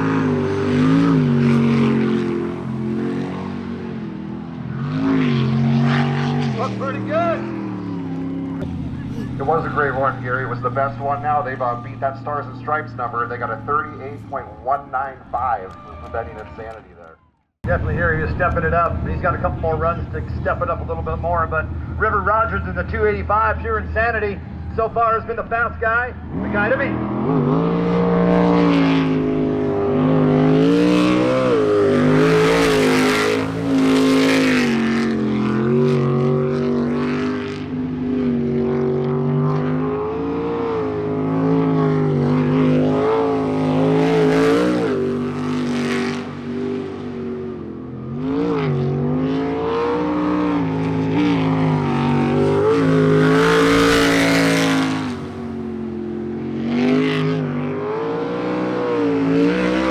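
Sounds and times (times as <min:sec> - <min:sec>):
boat engine running hard: 0:00.0 - 0:15.5, 0:17.7 - 0:47.6, 0:48.3 - 0:58.0.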